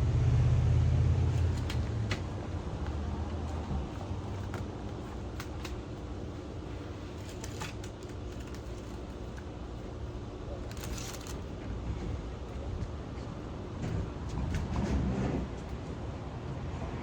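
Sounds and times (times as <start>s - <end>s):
road traffic rumble: 0.0s - 6.8s, 11.6s - 17.0s.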